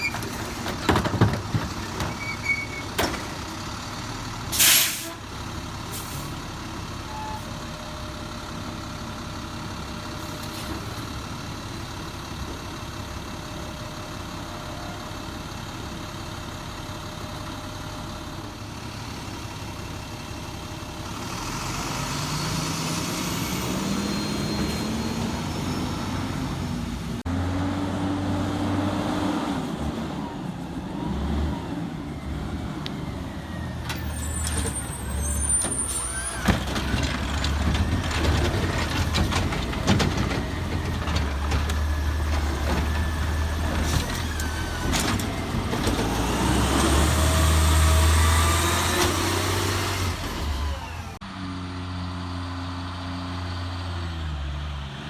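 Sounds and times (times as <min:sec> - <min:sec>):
air brakes hissing: 0:04.5 - 0:05.2, 0:05.9 - 0:06.4, 0:33.9 - 0:36.7
truck engine revving: 0:21.1 - 0:30.1, 0:34.0 - 0:55.0.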